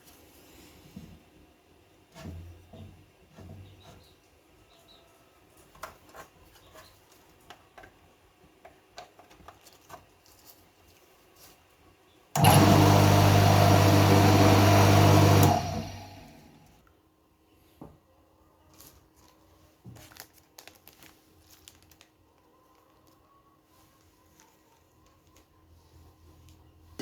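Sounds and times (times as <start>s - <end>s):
pressure washer motor running: 12.4s - 16.5s.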